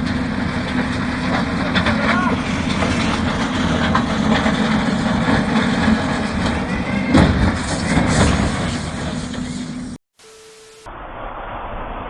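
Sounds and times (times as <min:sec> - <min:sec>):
heavy vehicle engine rumbling: 0:00.0 - 0:10.0
loud knocks: 0:02.7 - 0:08.7.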